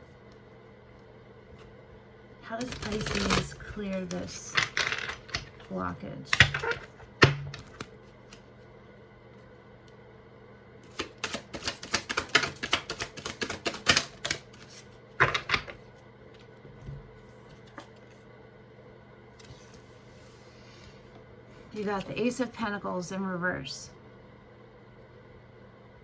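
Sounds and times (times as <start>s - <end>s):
cards being shuffled by hand: 2.5s - 5.7s, 6.3s - 8.5s, 10.8s - 15.8s.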